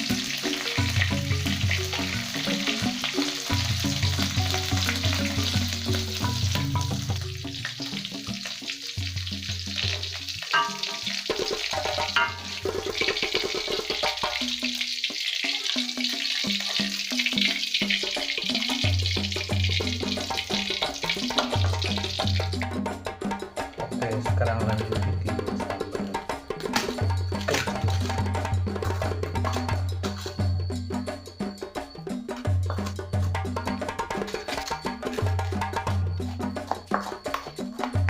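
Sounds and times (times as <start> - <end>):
meat sizzling in hot oil: 0.0 - 22.7
background music: 0.0 - 38.0.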